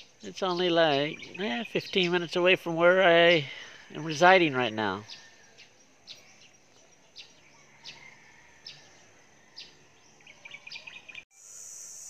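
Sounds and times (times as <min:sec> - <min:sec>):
bird chirps: 0:00.0 - 0:11.3
high insect drone: 0:11.3 - 0:12.0.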